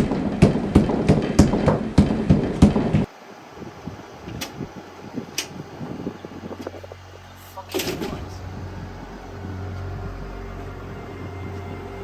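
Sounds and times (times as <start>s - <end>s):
rhythmic heavy thumps: 0.0s - 3.1s, 7.7s - 12.0s.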